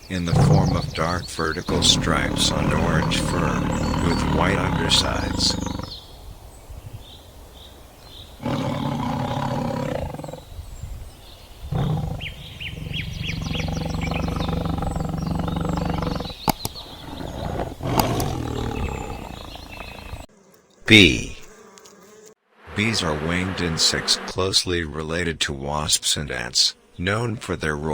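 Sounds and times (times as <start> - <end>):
tiger roaring and growling: 0.1 - 6.0, 8.4 - 10.6, 11.7 - 20.3, 22.7 - 24.4.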